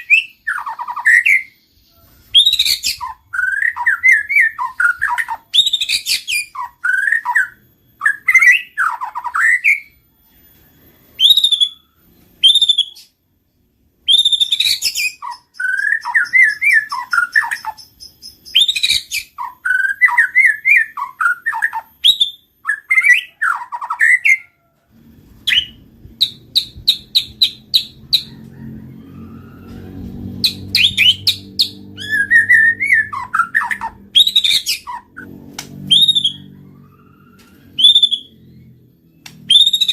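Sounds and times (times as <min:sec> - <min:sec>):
bird singing whistled phrases: 0:00.0 - 0:10.0, 0:11.2 - 0:13.2, 0:14.0 - 0:24.5, 0:30.4 - 0:36.6, 0:37.4 - 0:38.6, 0:39.2 - 0:39.9
faint low hum: 0:00.0 - 0:39.9.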